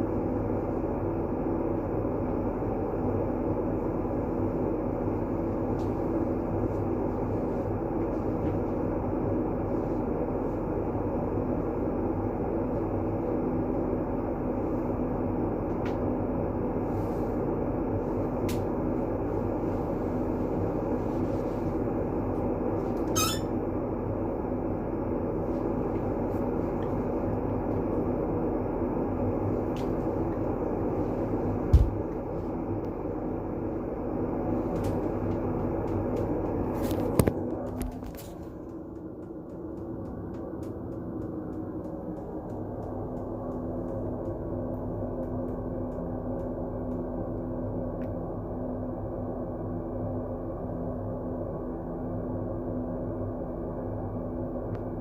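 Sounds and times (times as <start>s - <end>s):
faint hum: 0.0s - 55.0s
brief high squeak: 23.0s - 23.5s.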